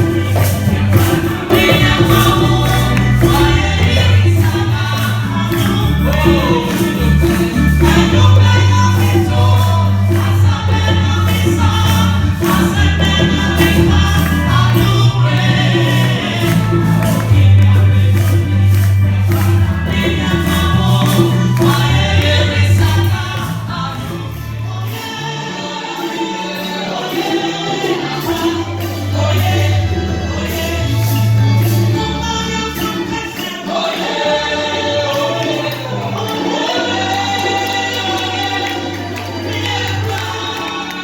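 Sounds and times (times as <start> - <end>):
bass line: 0.0 - 25.0, 28.2 - 33.3
choir singing gospel: 0.0 - 41.0
tambourine and percussion: 0.0 - 41.0.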